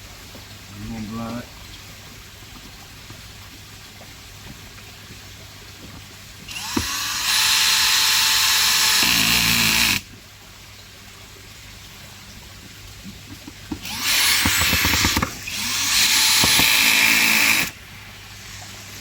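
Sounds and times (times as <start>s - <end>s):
cordless driver driving screw: 6.5s - 10.0s, 13.8s - 17.7s.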